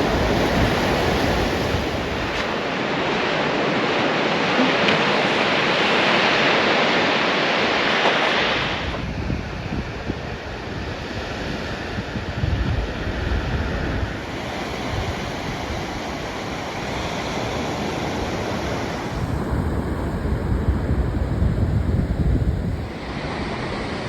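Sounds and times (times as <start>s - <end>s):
wind buffeting microphone: 0.0s - 2.9s, 8.5s - 23.6s
ocean surf breaking on beach: 0.0s - 9.4s, 13.1s - 24.0s.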